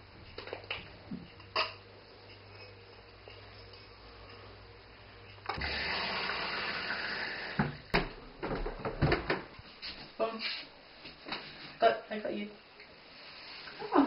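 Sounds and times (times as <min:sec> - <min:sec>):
water running from a tap: 0:05.6 - 0:08.0.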